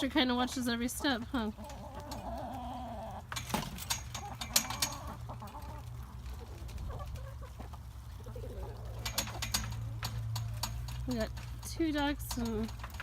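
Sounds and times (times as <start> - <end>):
chickens clucking softly: 0.8 - 3.3, 4.2 - 9.4.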